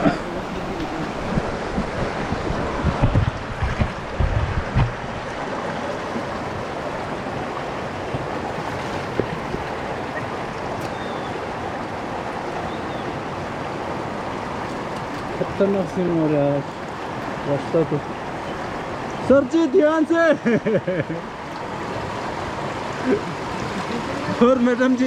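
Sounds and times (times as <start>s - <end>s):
low thumps: 0.0s - 5.3s
flowing stream: 0.0s - 25.0s.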